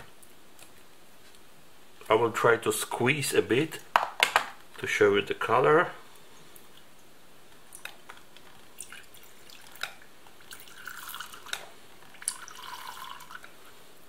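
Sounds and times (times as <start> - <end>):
juice dripping and trickling: 6.1 - 13.8.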